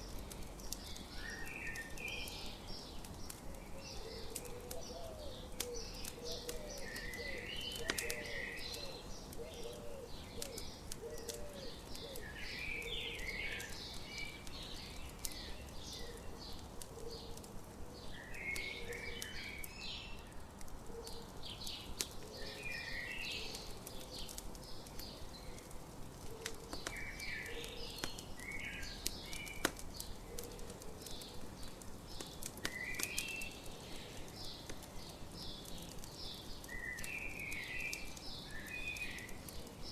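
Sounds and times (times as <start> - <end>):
low repeated bird call notes: 0.0 - 20.3, 20.9 - 39.9
birds singing: 0.0 - 39.9
campfire crackling and popping: 0.0 - 39.9.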